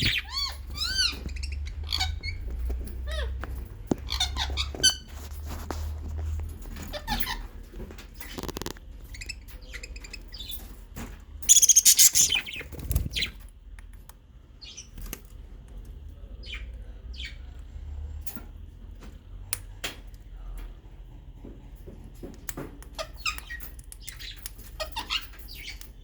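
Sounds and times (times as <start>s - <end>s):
budgerigars chirping: 0.0s - 2.5s, 11.4s - 13.3s.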